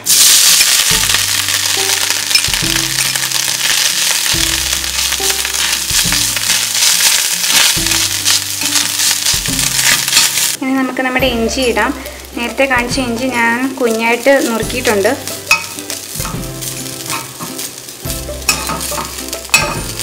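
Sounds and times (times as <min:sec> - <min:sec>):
coconut sizzling in oil: 0:00.0 - 0:10.6, 0:11.4 - 0:20.0
background music low notes: 0:00.0 - 0:20.0
spoon stirring in pan: 0:13.8 - 0:20.0.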